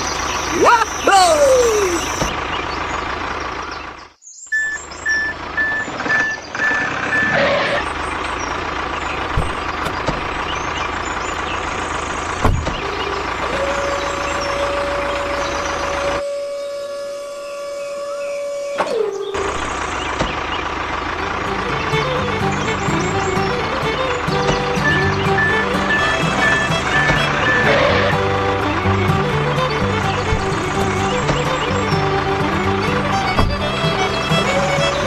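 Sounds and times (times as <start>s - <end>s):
vehicle engine noise: 0.0s - 16.3s, 19.3s - 35.0s
reversing beeps: 4.5s - 7.8s, 24.8s - 27.8s.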